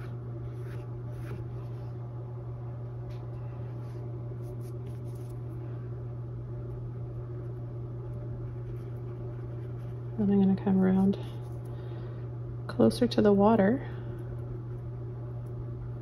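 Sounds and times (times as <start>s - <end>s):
steady low hum: 0.0s - 16.0s
paintbrush strokes on canvas: 3.7s - 5.5s.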